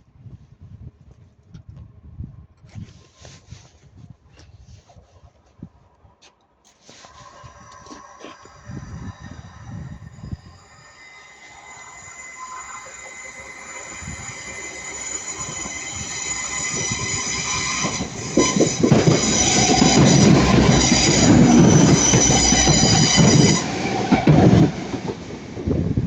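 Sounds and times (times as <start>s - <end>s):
train wheels squealing: 6.9s - 25.7s
train wheels rumbling on rails: 7.4s - 26.0s.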